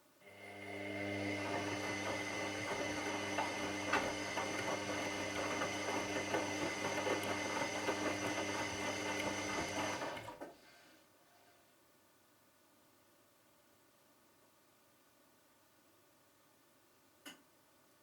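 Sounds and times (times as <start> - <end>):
washing machine motor humming: 0.3 - 10.4.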